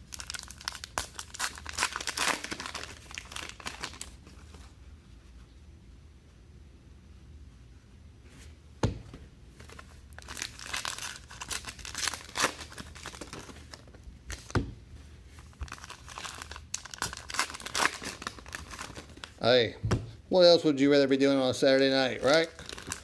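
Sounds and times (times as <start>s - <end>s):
card wrappers tearing and crinkling: 0.0s - 4.2s, 9.7s - 14.5s, 15.6s - 19.4s, 21.8s - 23.0s.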